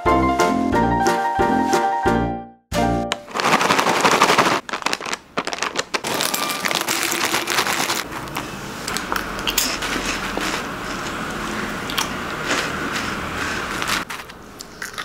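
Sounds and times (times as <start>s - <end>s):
plastic snack bag crinkling: 3.1s - 11.2s, 11.9s - 15.0s.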